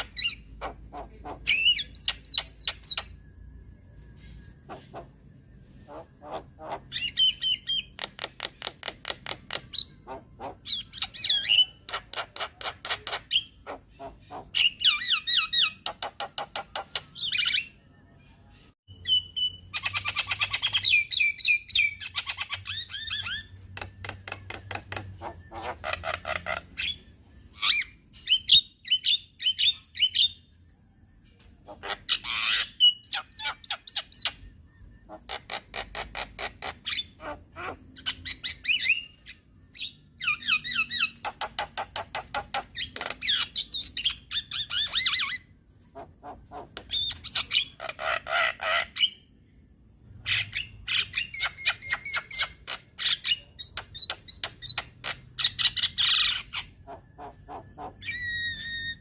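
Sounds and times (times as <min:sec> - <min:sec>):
bird squawks: 0:00.0 - 0:03.1, 0:04.2 - 0:17.7, 0:19.0 - 0:30.3, 0:31.6 - 0:39.2, 0:39.8 - 0:49.2, 0:50.2 - 0:59.0
bird song harsh clicking chatter: 0:01.5 - 0:03.2, 0:05.9 - 0:17.6, 0:19.8 - 0:28.6, 0:35.1 - 0:37.2, 0:40.3 - 0:45.3, 0:46.0 - 0:49.1, 0:50.4 - 0:59.0.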